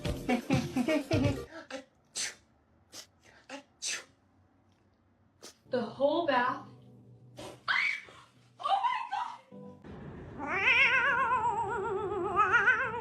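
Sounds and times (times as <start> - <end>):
cat meowing: 10.4 - 13.0
cat wavering yowl: 10.4 - 13.0.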